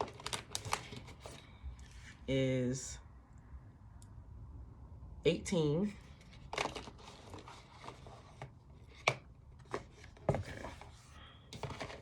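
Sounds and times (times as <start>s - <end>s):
packaging rustling: 0.0s - 1.5s, 6.3s - 12.0s.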